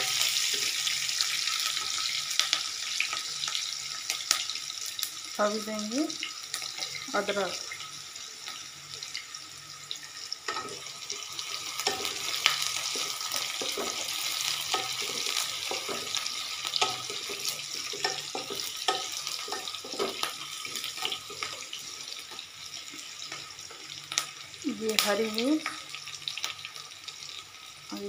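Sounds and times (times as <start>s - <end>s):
onions sizzling in hot oil: 0.0s - 28.0s
spatula scraping a pan: 11.7s - 21.8s.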